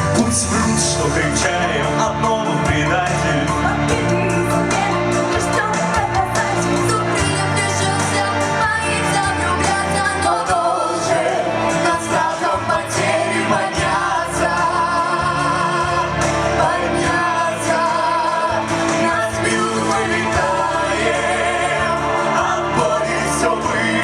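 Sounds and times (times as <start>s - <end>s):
group of voices singing: 0.0s - 24.0s
instrumental backing track: 0.0s - 24.0s.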